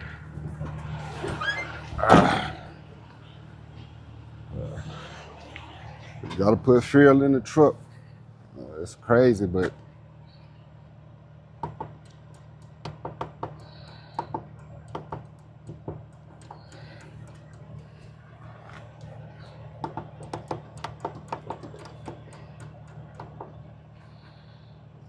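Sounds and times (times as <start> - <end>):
steady low hum: 0.0 - 25.0
irregular clicks and knocks: 19.8 - 23.7.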